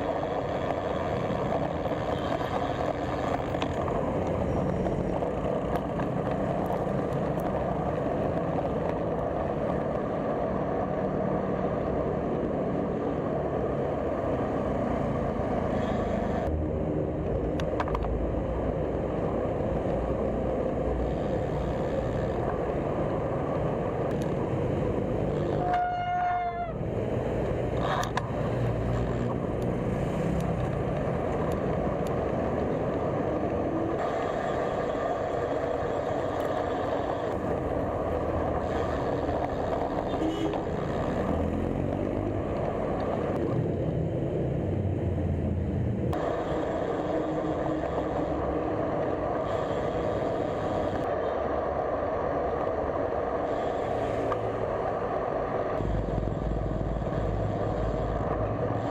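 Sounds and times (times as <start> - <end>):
road traffic: 0.0 - 58.9
rushing wind: 0.0 - 58.9
vehicle horn honk: 40.1 - 40.6.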